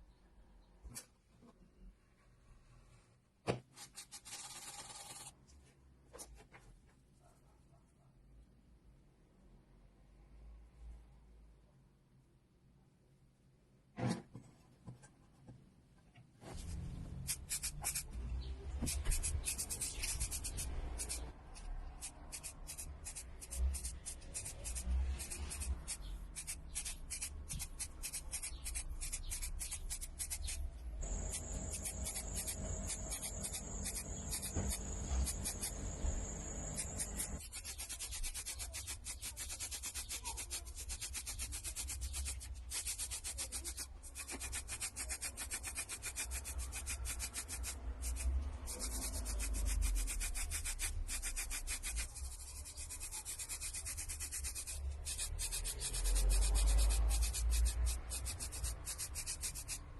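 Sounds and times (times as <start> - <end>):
rapid rubbing like sandpaper: 16.5 - 59.9.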